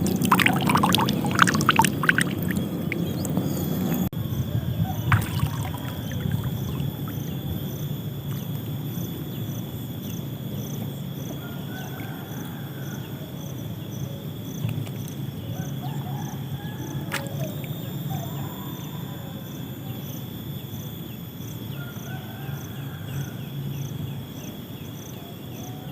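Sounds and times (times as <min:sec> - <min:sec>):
steady low rumble: 0:00.0 - 0:11.1
insects chirping: 0:00.0 - 0:25.9.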